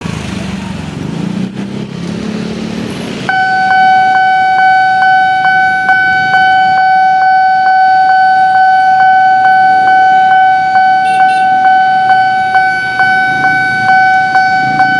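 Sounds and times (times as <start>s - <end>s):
street traffic: 0.0s - 14.9s
level crossing alarm tone: 3.3s - 14.9s
regular alarm clicks: 3.3s - 14.9s.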